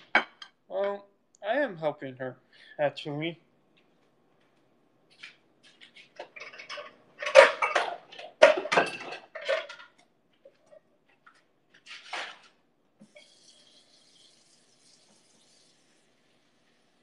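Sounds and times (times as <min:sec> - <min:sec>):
pots and utensils clattering: 0:05.6 - 0:12.6.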